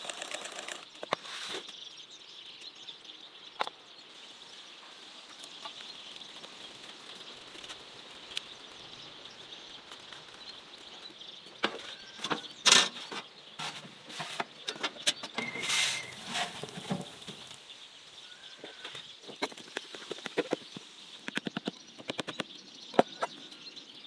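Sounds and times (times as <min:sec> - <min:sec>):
faint high outdoor hiss: 0:00.0 - 0:24.0
short rustling bursts: 0:15.4 - 0:17.6.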